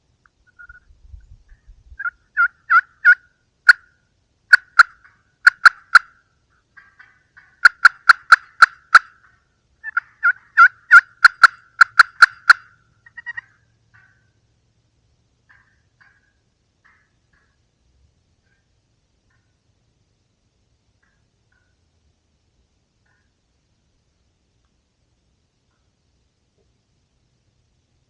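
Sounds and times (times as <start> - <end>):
turkey yelps: 2.0 - 6.2, 6.8 - 14.3, 15.5 - 17.6.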